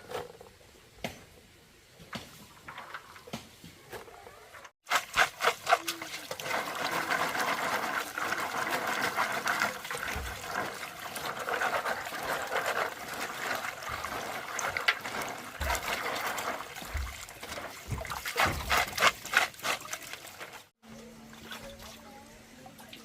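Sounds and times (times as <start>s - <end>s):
water trickling: 5.4s - 23.0s.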